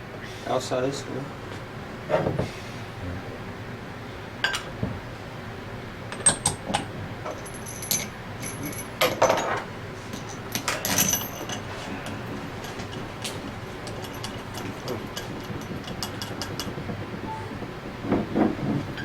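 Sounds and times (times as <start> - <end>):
metal tools clinking on workbench: 7.3 - 9.6, 10.2 - 11.6.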